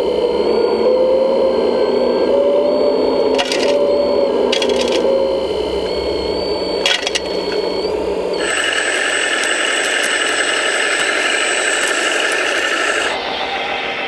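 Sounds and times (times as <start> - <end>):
mechanical whine: 0.0 - 14.0
sharp clicks: 3.3 - 13.2.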